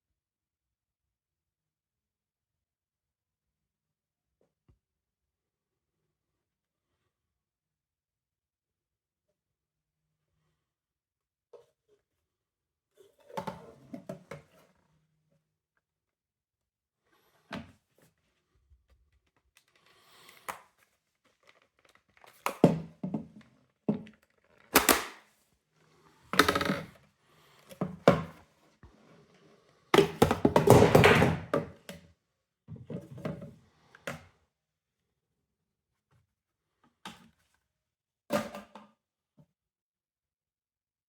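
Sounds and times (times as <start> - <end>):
plastic parts knocking and clicking: 21.5 - 25.2, 30.0 - 32.0.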